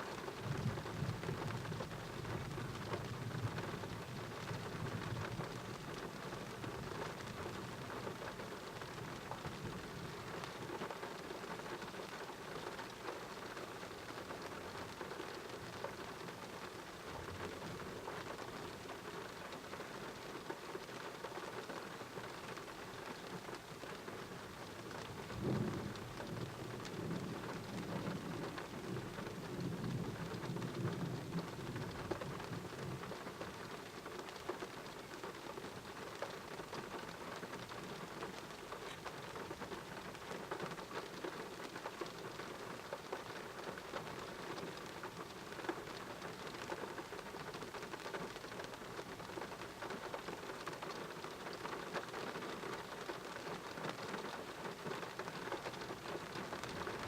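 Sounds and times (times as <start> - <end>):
heavy rain falling: 0.0 - 57.0
thunder rumbling: 25.1 - 33.2.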